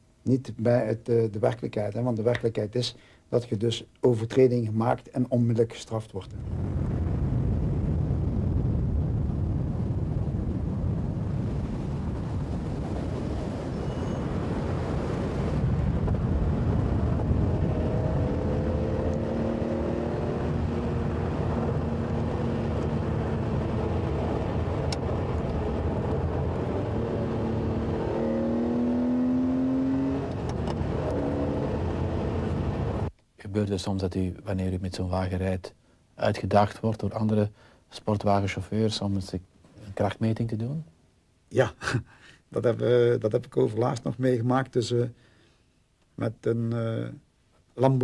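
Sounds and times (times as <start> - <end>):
car engine and road rumble: 12.2 - 33.1
humming engine note: 16.6 - 33.1.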